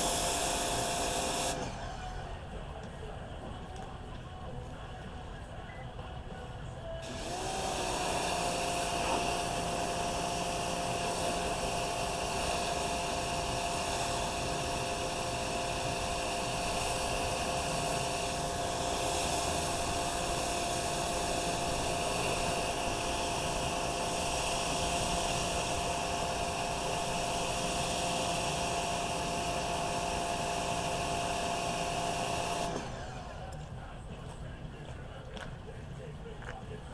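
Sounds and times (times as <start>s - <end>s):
small electric motor whining: 0.0s - 2.3s, 7.0s - 33.6s.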